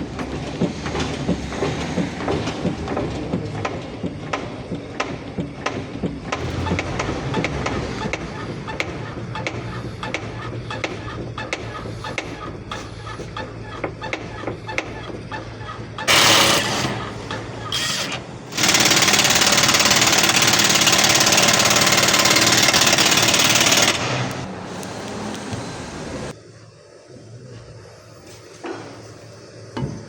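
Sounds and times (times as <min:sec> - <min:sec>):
car suspension squeaking: 0:06.1 - 0:18.5.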